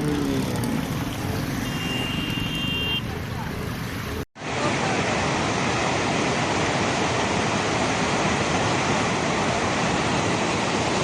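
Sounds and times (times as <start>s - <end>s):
water rushing torrent: 0.0s - 11.0s.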